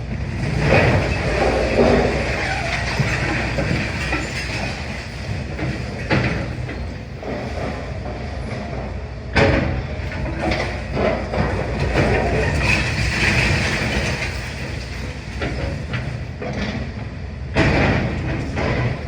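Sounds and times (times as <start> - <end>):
excavator running under load: 0.0 - 19.0
falling masonry crashing: 0.2 - 8.4, 9.6 - 16.3
rubble clattering: 0.4 - 8.2, 10.1 - 16.2.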